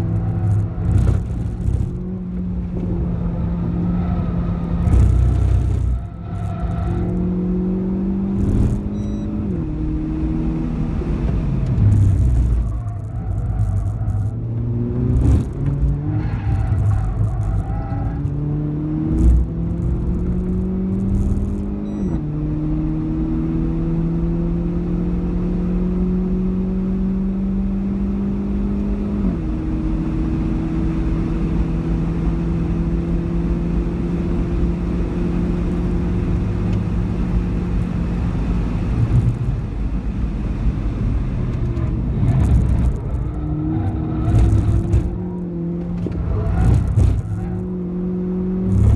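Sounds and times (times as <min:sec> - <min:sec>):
car engine accelerating in cabin: 0:00.0 - 0:48.9
thumps: 0:44.2 - 0:47.7.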